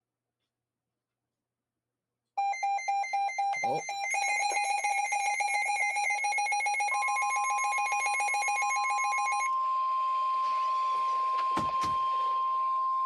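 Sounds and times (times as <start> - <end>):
rapid pulsing beeps: 2.4 - 9.5.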